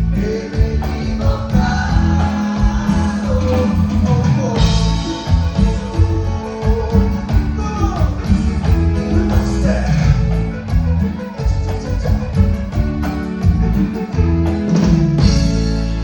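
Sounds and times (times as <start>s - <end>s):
person singing: 0.0s - 14.5s
live band music: 0.0s - 16.0s
pulsing bass beat: 0.0s - 16.0s.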